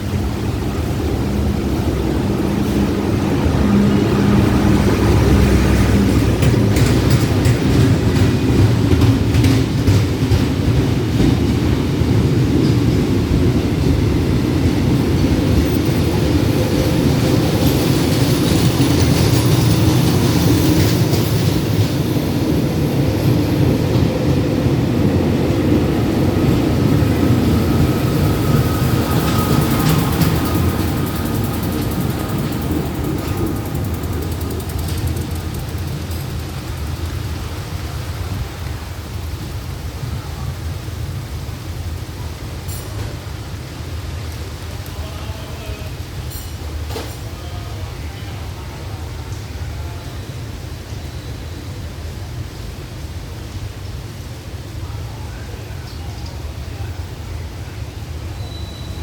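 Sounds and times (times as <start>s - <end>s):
railway machines rumbling: 0.0s - 59.0s
wheels clicking over rail joints: 4.9s - 25.2s, 26.4s - 39.6s.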